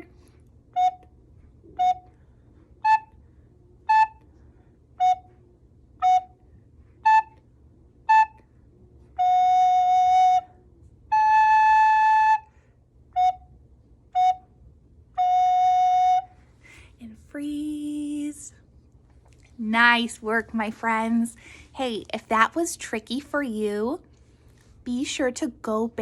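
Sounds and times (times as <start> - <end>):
recorder playing simple tune: 0.8 - 2.2, 2.8 - 3.2, 3.8 - 4.3, 5.0 - 5.4, 6.0 - 6.4, 7.0 - 7.4, 8.0 - 8.5, 9.1 - 12.5, 13.1 - 14.5, 15.2 - 16.4.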